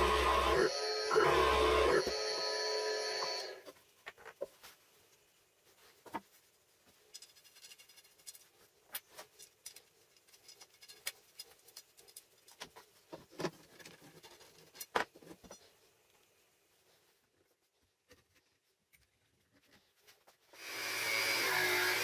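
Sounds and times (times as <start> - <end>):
small workpieces clicking and scraping: 5.8 - 16.4.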